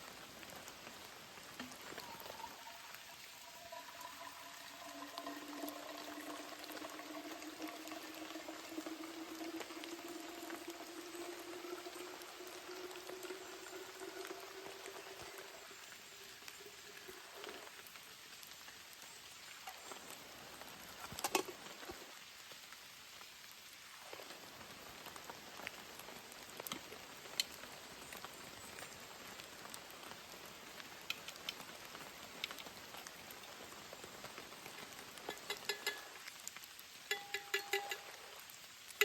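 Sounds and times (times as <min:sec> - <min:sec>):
steady rain hiss: 0:00.0 - 0:39.0
sharp drips and taps: 0:01.5 - 0:15.8, 0:34.3 - 0:39.0.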